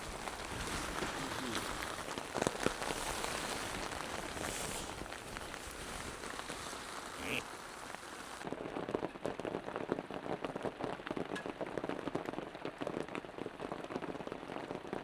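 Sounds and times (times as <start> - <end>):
heavy rain falling: 0.0 - 8.7.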